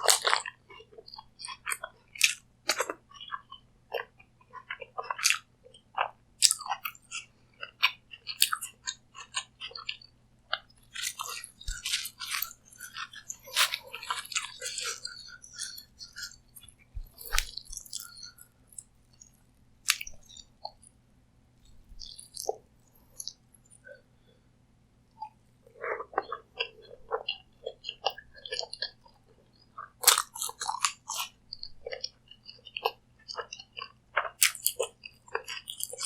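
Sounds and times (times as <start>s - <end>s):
wet mouth clicks: 0.0s - 0.5s, 1.1s - 20.9s, 21.6s - 22.6s, 23.2s - 23.4s, 30.0s - 36.0s
person chewing crunchy food: 0.0s - 20.9s, 21.6s - 24.0s, 25.2s - 36.0s.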